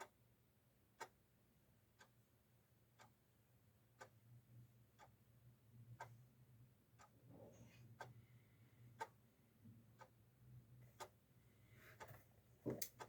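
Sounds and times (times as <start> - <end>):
clock ticking: 0.0 - 0.2, 0.9 - 1.2, 1.9 - 2.2, 3.0 - 3.2, 4.0 - 4.2, 5.0 - 5.2, 5.8 - 6.2, 7.0 - 7.2, 9.0 - 9.2, 10.0 - 10.2, 12.0 - 13.0.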